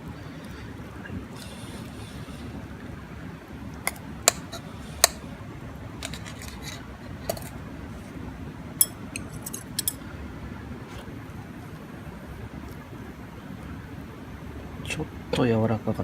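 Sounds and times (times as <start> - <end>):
utensil clinking on dishes: 6.0 - 7.6, 8.8 - 10.0.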